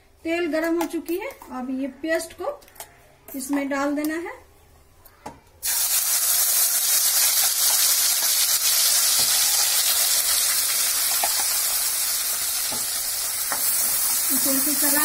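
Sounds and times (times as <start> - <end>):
paste sizzling in hot oil: 5.6 - 15.0.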